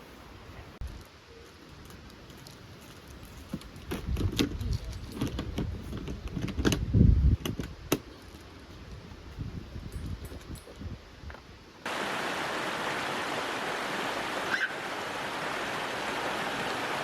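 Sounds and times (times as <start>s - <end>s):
light metallic clinks and knocks: 9.8s - 10.8s.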